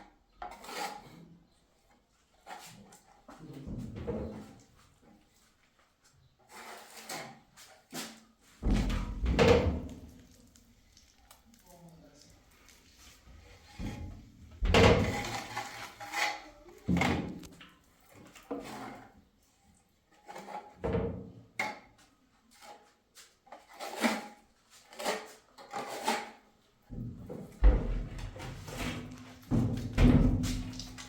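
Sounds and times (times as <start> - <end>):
knocks of objects being handled: 26.9 - 31.0.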